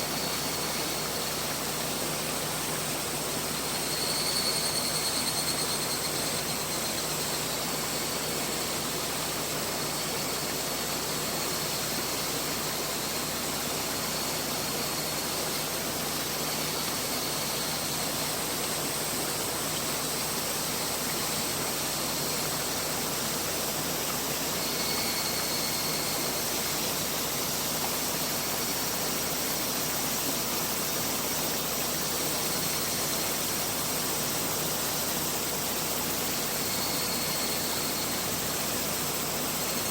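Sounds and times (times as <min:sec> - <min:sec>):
faint thin high tones: 0:03.8 - 0:06.8.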